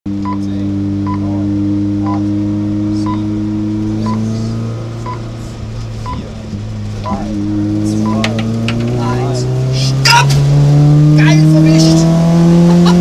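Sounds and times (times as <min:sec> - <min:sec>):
car engine running: 0:00.1 - 0:13.0
short electronic beeps: 0:00.2 - 0:01.3, 0:02.0 - 0:02.3, 0:03.0 - 0:03.3, 0:04.0 - 0:04.4, 0:05.0 - 0:05.2, 0:06.0 - 0:06.3, 0:08.0 - 0:08.2.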